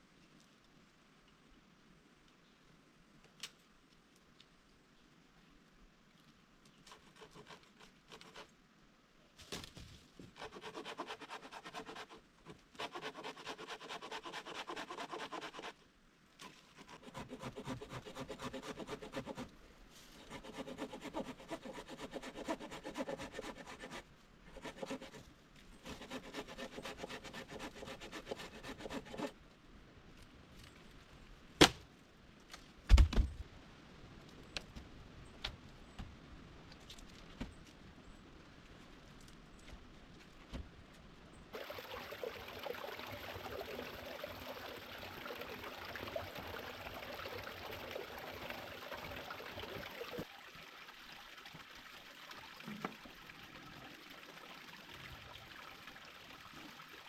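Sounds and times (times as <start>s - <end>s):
hand saw cutting wood: 6.9s - 8.5s, 10.4s - 15.8s, 16.7s - 19.5s, 20.2s - 25.2s, 25.8s - 29.3s.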